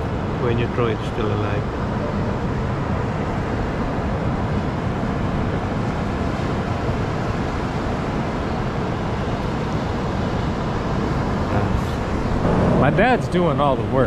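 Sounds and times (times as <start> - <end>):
wind on microphone: 10.8 - 14.0
ocean surf breaking: 12.0 - 14.0.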